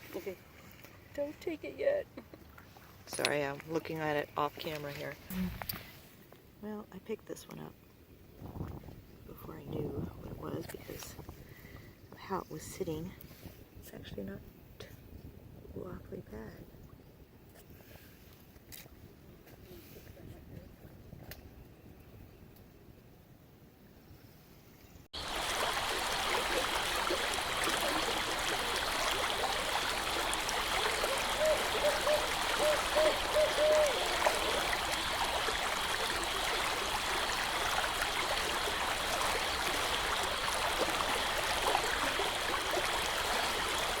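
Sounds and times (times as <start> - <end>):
creek water trickling: 0.0 - 13.0, 25.2 - 44.0.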